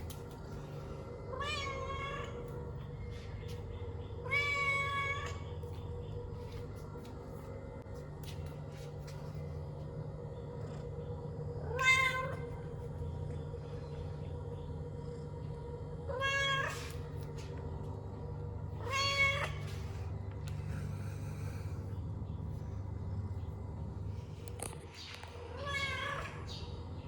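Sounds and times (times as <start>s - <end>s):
cat meowing: 1.3s - 2.4s, 4.2s - 5.4s, 16.1s - 17.0s, 18.8s - 19.6s.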